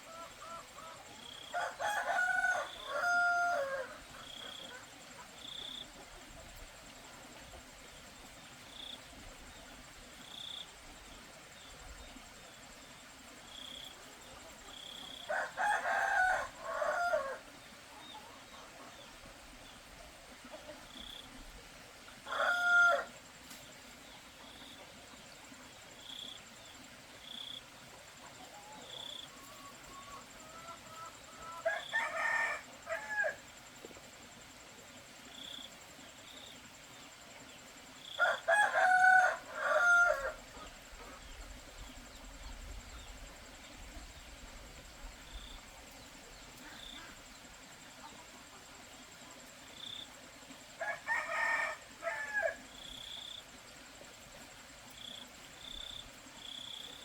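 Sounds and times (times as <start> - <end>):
rooster crowing: 1.5 - 4.0, 15.3 - 17.5, 22.2 - 23.1, 31.4 - 33.4, 38.2 - 40.6, 50.8 - 52.6
chicken clucking: 28.3 - 31.6.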